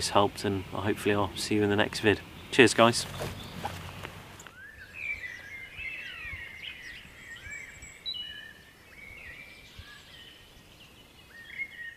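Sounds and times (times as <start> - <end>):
birds singing: 0.0 - 11.9.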